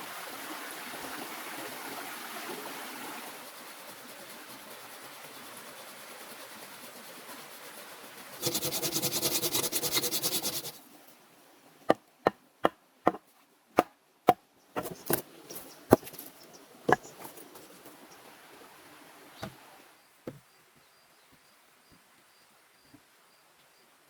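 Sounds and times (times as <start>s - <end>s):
wood being chopped: 12.3s - 13.2s, 13.8s - 15.3s, 15.9s - 16.2s.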